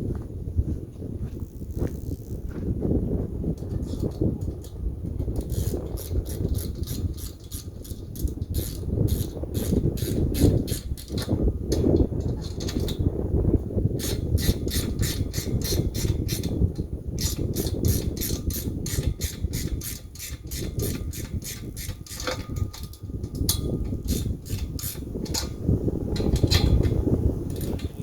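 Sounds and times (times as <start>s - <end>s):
ratchet wrench clicking: 1.4s - 2.5s, 3.6s - 13.1s, 14.0s - 28.0s.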